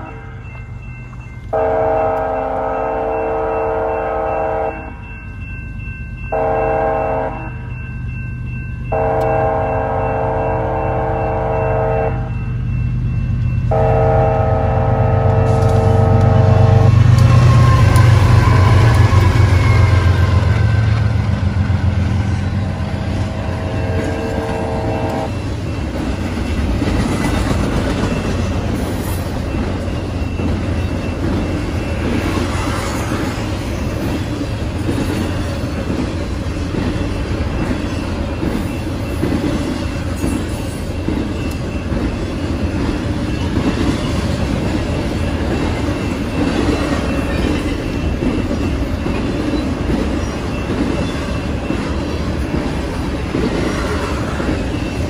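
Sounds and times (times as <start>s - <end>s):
diesel locomotive engine: 0.0s - 55.0s
train wheels rumbling and clacking: 0.0s - 55.0s
train horn chord: 1.5s - 5.0s, 6.3s - 7.6s, 8.9s - 12.4s, 13.7s - 20.8s, 22.5s - 25.4s.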